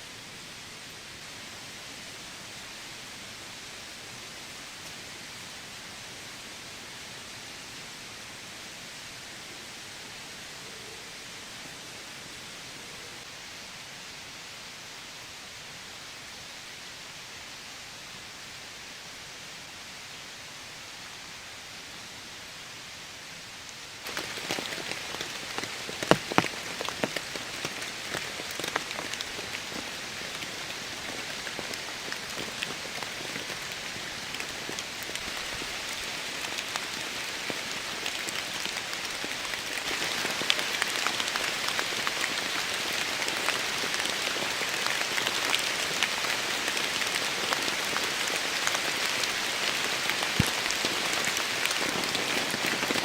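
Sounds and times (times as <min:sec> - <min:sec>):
soft steady hiss: 0:00.0 - 0:53.0
heavy rain falling: 0:23.8 - 0:53.0.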